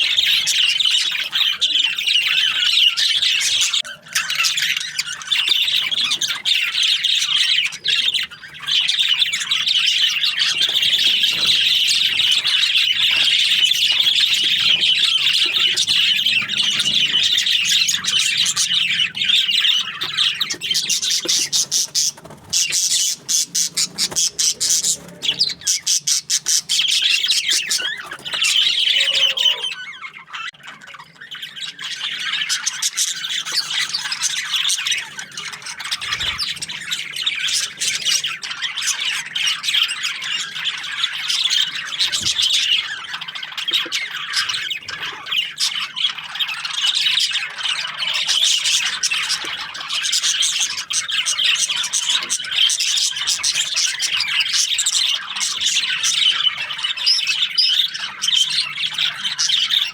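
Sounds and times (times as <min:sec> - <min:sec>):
budgerigars chirping and chattering: 0:00.0 - 0:59.9.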